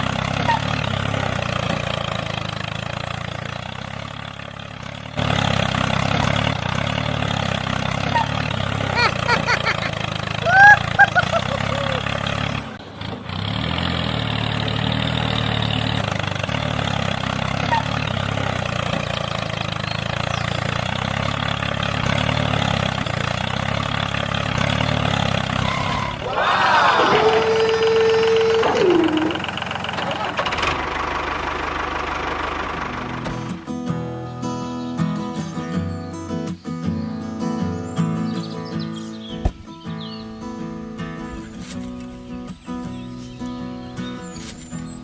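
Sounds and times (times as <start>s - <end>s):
small engine running: 0.0s - 34.6s.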